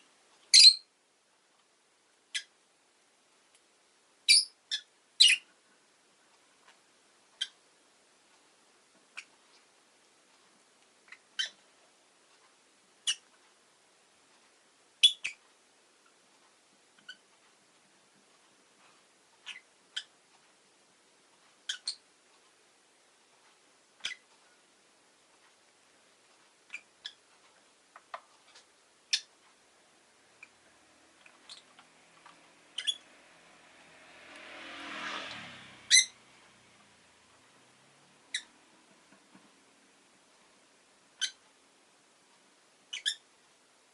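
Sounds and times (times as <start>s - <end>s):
lovebird chirping: 0.5s - 0.9s, 2.3s - 2.5s, 4.2s - 5.5s, 11.1s - 11.6s, 13.0s - 13.2s, 15.0s - 15.4s, 19.4s - 20.1s, 21.6s - 22.0s, 24.0s - 24.2s, 26.7s - 27.2s, 29.1s - 29.3s, 31.5s - 31.8s, 32.7s - 33.2s, 35.9s - 36.2s, 38.3s - 38.5s, 41.2s - 41.4s, 42.9s - 43.3s.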